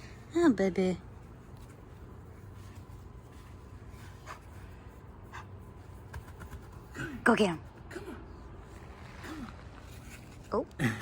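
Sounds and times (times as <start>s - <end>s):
low steady hum: 0.0s - 11.0s
puppy scratching and rustling: 1.0s - 6.9s, 8.6s - 10.6s.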